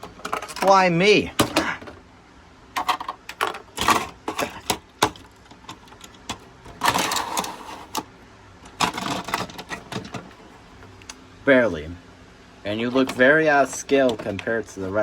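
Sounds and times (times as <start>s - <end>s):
plastic toy trains clicking and knocking: 2.8s - 8.0s, 8.7s - 10.3s, 12.9s - 14.8s.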